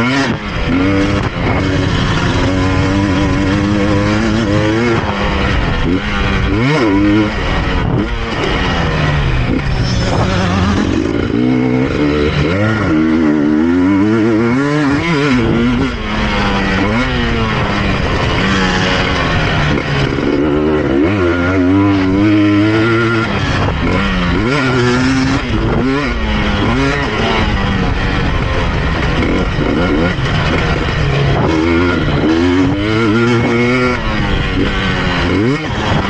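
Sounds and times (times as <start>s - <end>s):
two-stroke engine revving: 0.0s - 36.0s.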